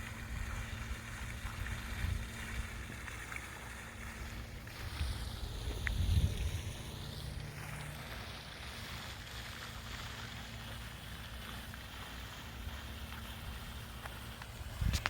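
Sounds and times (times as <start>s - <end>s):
wind rumbling on microphone: 0.0s - 3.2s, 3.8s - 8.2s, 14.4s - 15.0s
faint steady hum: 0.0s - 15.0s.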